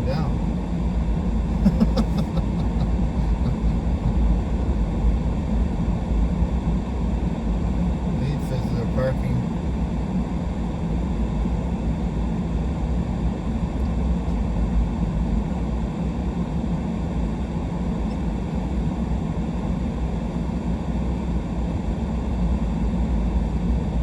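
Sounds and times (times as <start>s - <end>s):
truck engine and tyres rumbling: 1.4s - 4.7s.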